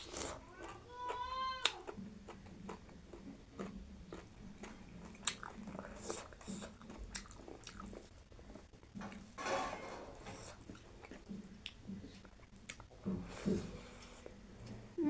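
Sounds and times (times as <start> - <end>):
close chewing and biting: 0.0 - 9.3.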